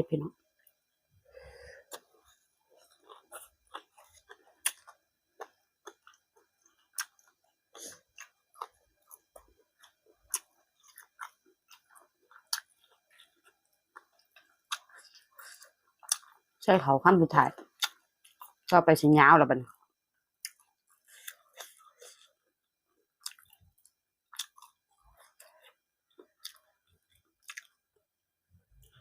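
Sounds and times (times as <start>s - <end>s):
person chewing food: 0.6s - 16.6s, 17.6s - 18.7s, 19.7s - 29.0s.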